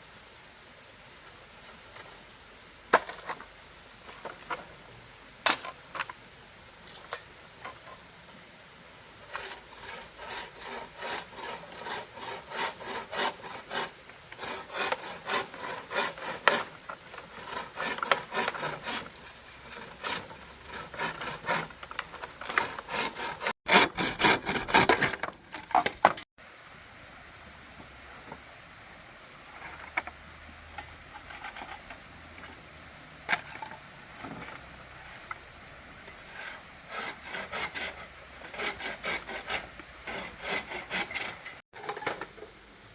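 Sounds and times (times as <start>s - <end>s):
hand saw cutting wood: 9.2s - 26.3s, 36.1s - 42.0s.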